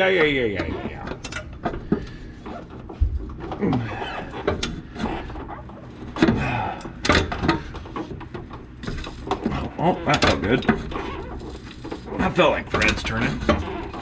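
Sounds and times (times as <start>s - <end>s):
man grunting with strain: 3.6s - 4.2s.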